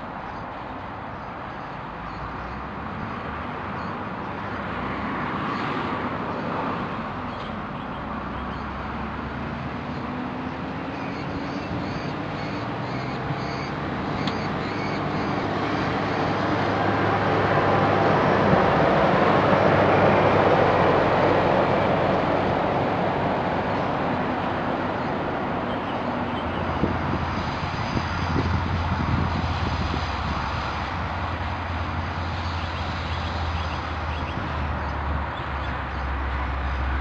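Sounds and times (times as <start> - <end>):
train rail and engine noise: 0.0 - 37.0
distant diesel locomotive engine: 11.0 - 29.1.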